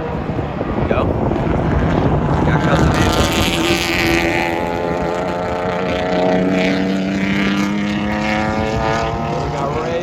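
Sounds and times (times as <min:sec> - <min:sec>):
race car engine driving by: 0:00.0 - 0:10.0.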